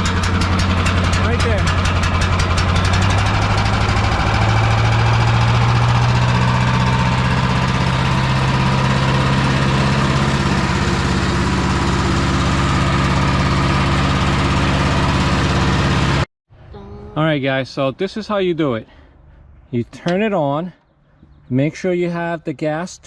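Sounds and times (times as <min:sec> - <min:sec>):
wood chipper engine running: 0:00.0 - 0:16.3.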